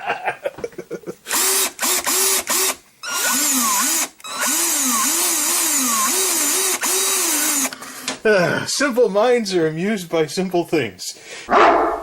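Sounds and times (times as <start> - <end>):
cordless drill motor: 1.3 - 7.8.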